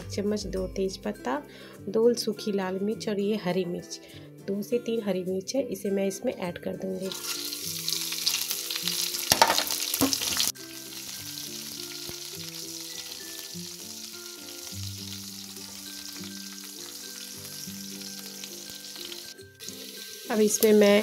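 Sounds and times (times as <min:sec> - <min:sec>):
background music: 0:00.0 - 0:21.0
spices sizzling in hot oil: 0:06.9 - 0:21.0.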